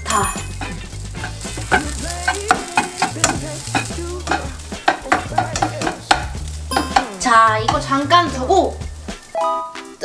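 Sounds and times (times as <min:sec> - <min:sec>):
food sizzling in a pan: 0:00.0 - 0:10.0
spatula scraping a pan: 0:00.6 - 0:08.0.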